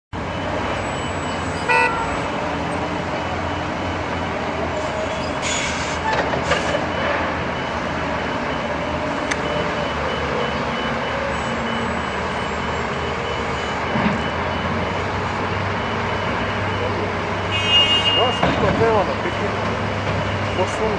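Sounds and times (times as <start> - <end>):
horn toot: 1.7 - 2.2.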